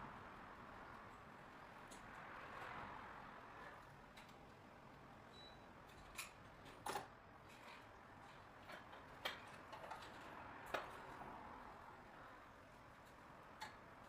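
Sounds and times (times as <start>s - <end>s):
faint clicks and light knocks: 3.7s - 4.6s.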